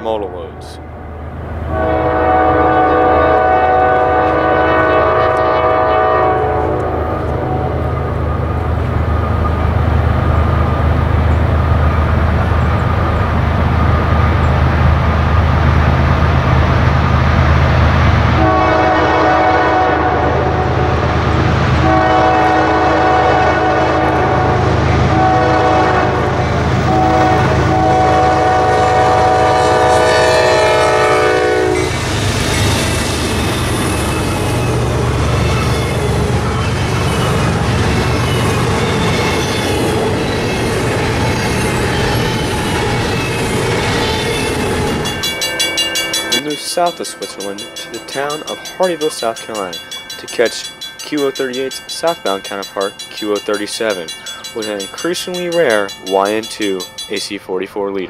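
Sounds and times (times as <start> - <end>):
diesel locomotive rumble: 0.0 - 57.6
train wheel and rail noise: 0.0 - 58.0
train air horn blasts: 1.7 - 7.8, 18.4 - 20.8, 21.8 - 26.3, 26.9 - 32.0.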